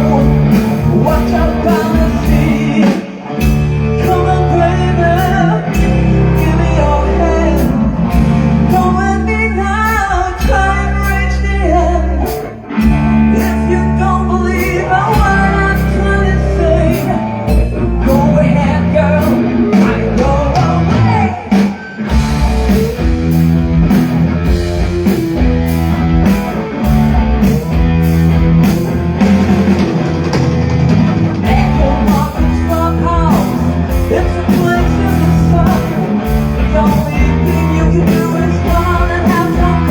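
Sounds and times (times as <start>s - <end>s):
drum kit beat: 0.0s - 4.3s, 5.2s - 6.7s, 7.6s - 9.0s, 12.3s - 13.6s, 16.9s - 39.9s
person singing: 0.0s - 23.0s, 31.3s - 39.9s
electric guitar: 0.0s - 39.9s
rock band playing: 0.0s - 39.9s.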